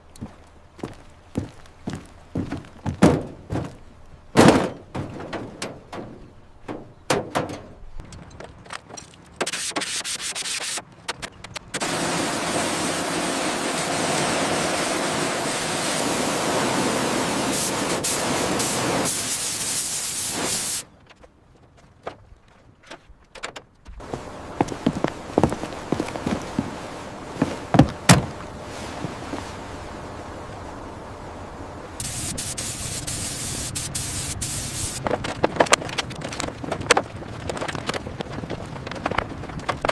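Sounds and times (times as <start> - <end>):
sanding noise: 9.4 - 10.8, 32.0 - 35.0.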